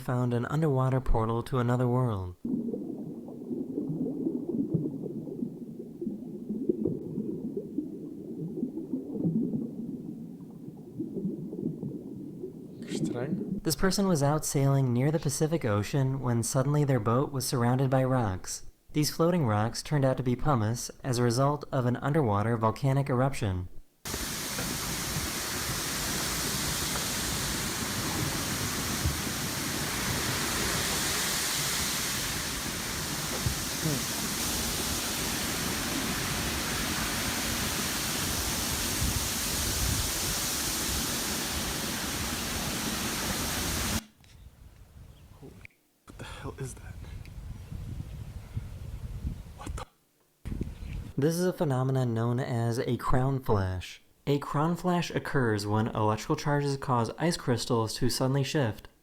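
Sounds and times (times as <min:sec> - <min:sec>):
underwater bubbling: 0:02.3 - 0:13.7, 0:24.1 - 0:44.0
water rushing at sea: 0:02.4 - 0:12.9, 0:24.1 - 0:44.0
wind: 0:24.1 - 0:51.2.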